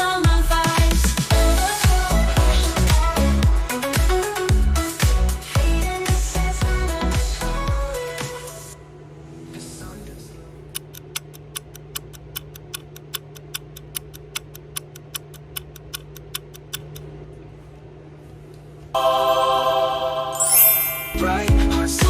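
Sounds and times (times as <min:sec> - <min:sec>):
loud music: 0:00.3 - 0:09.8, 0:19.0 - 0:22.0.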